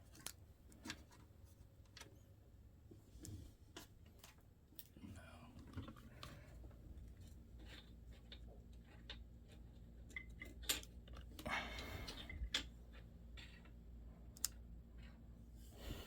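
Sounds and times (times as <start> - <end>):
small laptop parts clicking: 12.1 - 14.7.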